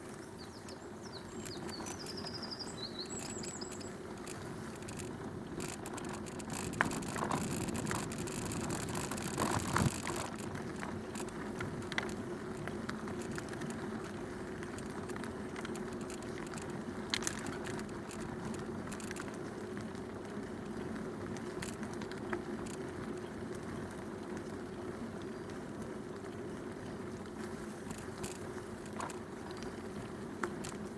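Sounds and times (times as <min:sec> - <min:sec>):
bicycle tyre and drivetrain noise: 0:00.0 - 0:30.9
bike clicks and rattle: 0:00.0 - 0:30.9
bike clattering: 0:03.1 - 0:13.8.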